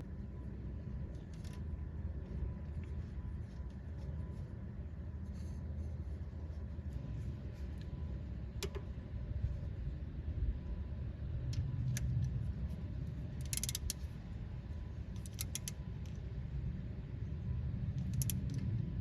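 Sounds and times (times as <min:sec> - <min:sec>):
steady low rumble: 0:00.0 - 0:19.0
metallic clicks of hand tools: 0:13.4 - 0:14.0, 0:15.2 - 0:15.8, 0:18.0 - 0:18.7.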